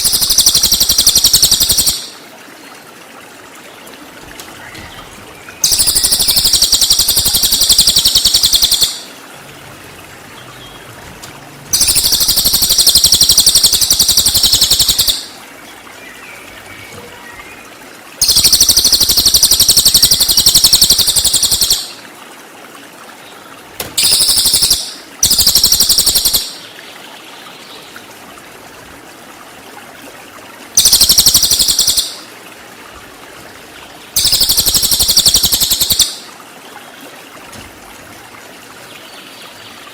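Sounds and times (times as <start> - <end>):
faint water trickle: 0.0 - 39.9
bird trilling: 4.6 - 9.2, 11.7 - 15.4, 30.8 - 32.2, 34.2 - 36.2.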